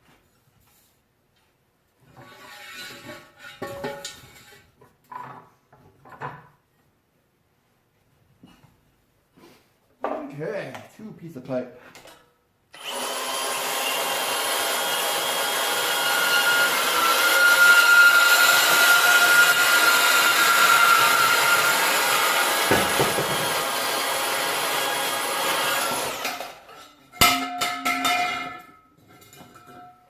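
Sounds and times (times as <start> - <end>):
power saw cutting steel pipe: 12.8 - 26.9.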